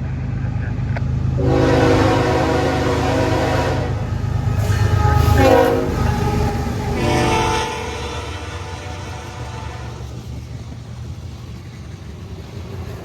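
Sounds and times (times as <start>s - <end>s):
engine and wheel rumble: 0.0s - 13.0s
locomotive air horn: 1.4s - 10.2s.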